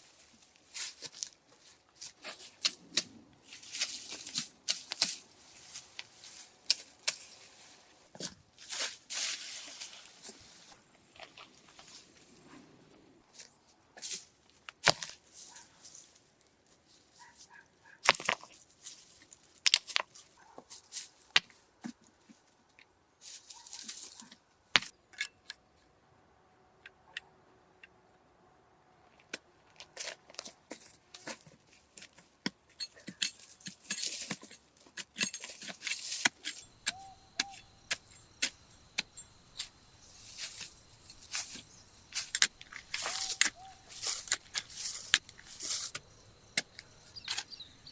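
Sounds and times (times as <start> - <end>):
rustling: 0.0 - 14.3, 33.0 - 47.5.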